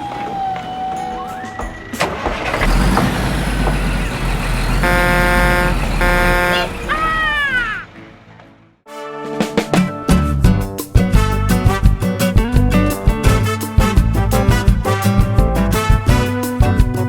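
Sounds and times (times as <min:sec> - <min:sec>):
truck engine rumbling: 0:00.0 - 0:08.6
truck horn honks: 0:02.0 - 0:08.0.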